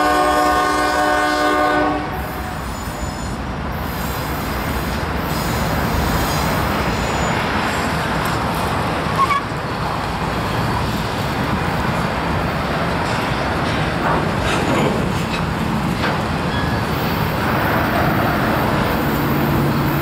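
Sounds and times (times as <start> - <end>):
freight train wheels rumbling: 0.0 - 20.0
high wheel squeal: 2.2 - 5.6, 6.2 - 8.0, 9.1 - 9.6.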